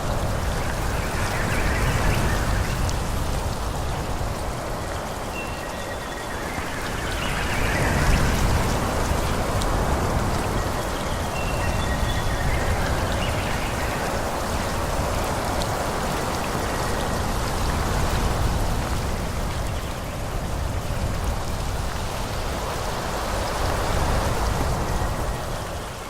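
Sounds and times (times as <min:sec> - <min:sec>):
wind rushing through trees: 0:00.0 - 0:26.0.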